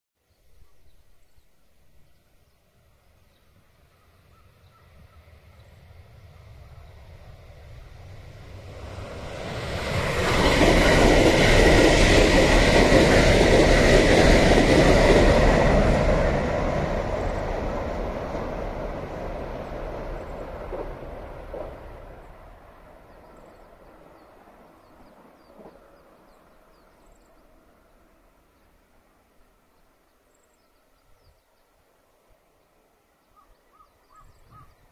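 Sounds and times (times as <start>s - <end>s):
train wheels rushing on rail: 3.7s - 27.4s.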